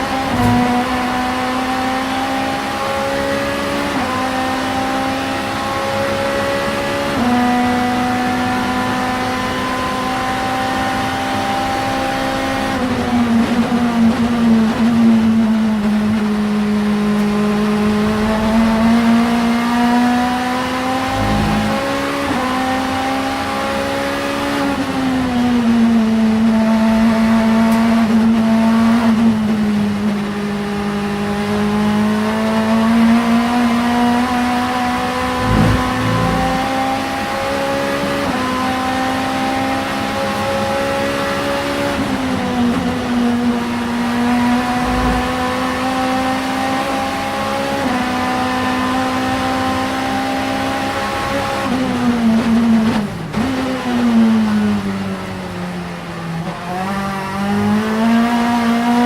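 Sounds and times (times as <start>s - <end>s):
race car engine at high revs: 0.0s - 59.0s
short low thuds: 35.2s - 36.7s.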